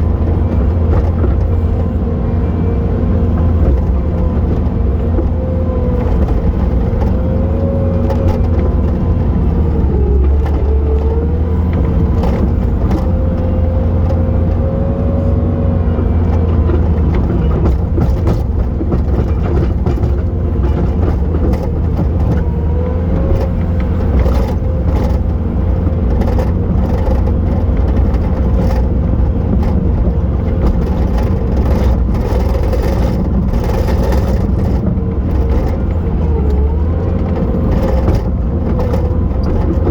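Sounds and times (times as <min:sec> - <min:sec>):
knocks and clatters: 0:00.0 - 0:01.9, 0:16.2 - 0:39.9
diesel loader engine droning: 0:00.0 - 0:39.9.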